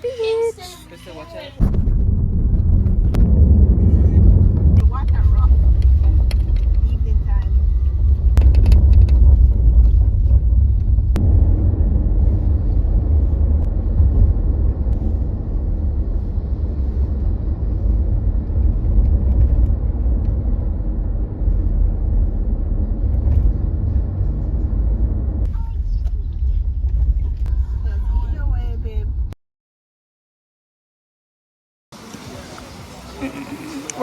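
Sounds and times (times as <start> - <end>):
road rumble inside car: 0.0 - 29.4.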